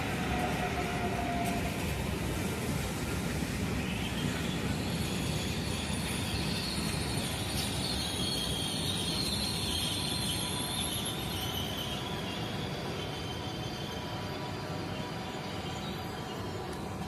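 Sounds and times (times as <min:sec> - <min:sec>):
train rumble: 0:00.0 - 0:17.0
high-pitched wheel squeal: 0:04.9 - 0:16.5.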